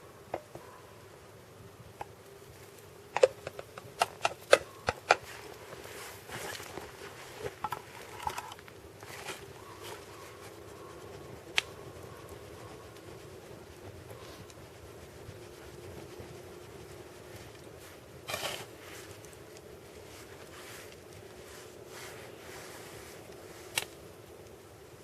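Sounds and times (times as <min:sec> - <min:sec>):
campfire crackling and popping: 0:11.1 - 0:21.5, 0:23.2 - 0:24.6.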